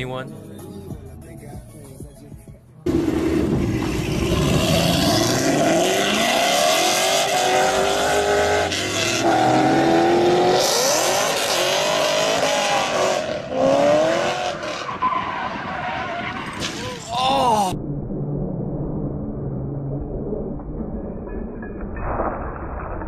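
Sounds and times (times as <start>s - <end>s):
car engines revving hard: 2.9s - 16.6s.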